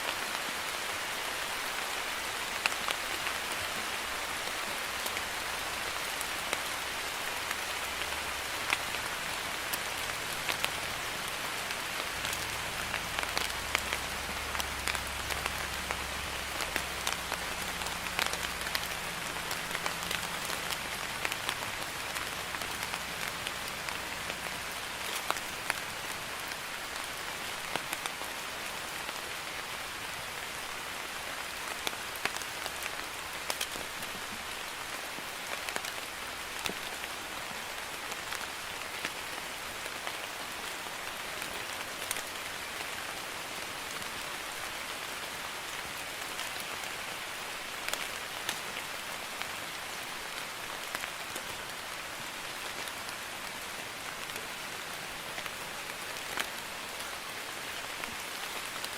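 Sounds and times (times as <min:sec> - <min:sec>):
light rain hissing: 0:00.0 - 0:58.9
raindrops pattering: 0:00.0 - 0:58.9.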